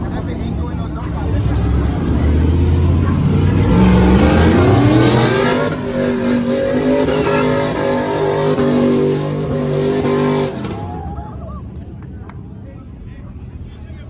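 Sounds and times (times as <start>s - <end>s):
vehicle engine revving: 0.0s - 11.1s.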